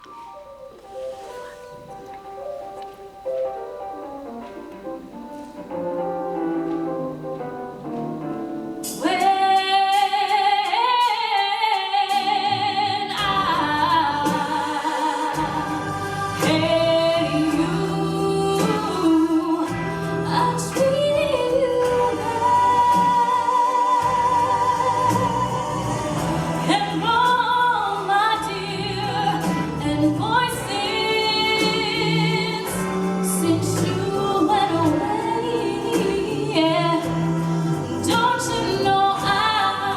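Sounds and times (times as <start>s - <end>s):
instrumental backing music: 0.0s - 39.9s
woman singing with vibrato: 8.8s - 39.9s.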